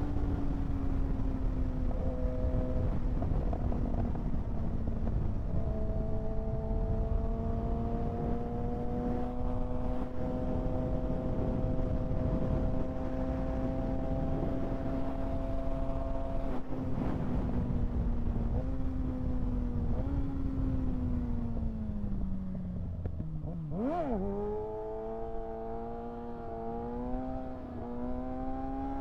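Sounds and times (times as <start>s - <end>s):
motorcycle engine cruising: 0.0s - 29.0s
wind rush: 2.6s - 21.4s.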